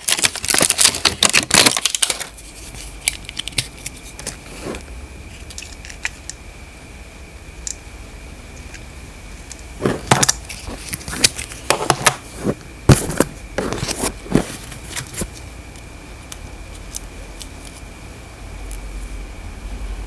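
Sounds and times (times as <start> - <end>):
clicks scrapes and crackles of handling: 0.0 - 6.3, 9.5 - 15.5.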